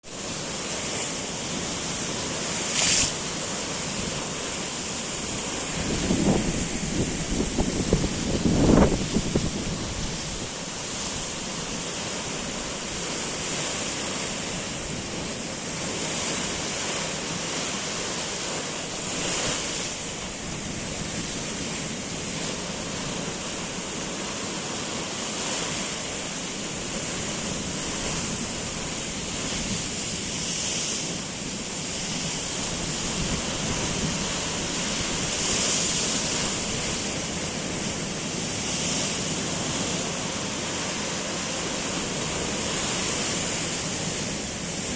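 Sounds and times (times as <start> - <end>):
sea waves washing in: 0.0 - 44.9
wind blowing: 1.6 - 16.3.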